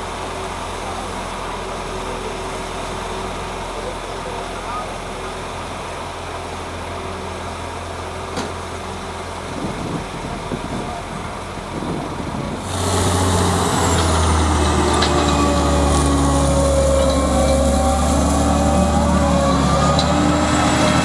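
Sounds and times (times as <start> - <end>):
tractor engine running: 12.2 - 21.0
high engine whine: 12.5 - 21.0.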